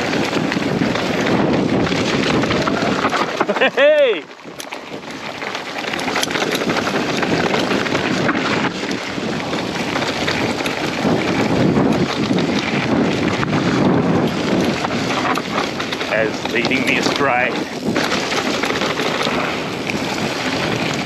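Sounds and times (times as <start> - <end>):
bike tyres rattling over ground: 0.0 - 21.0
wind buffeting microphone: 0.0 - 21.0.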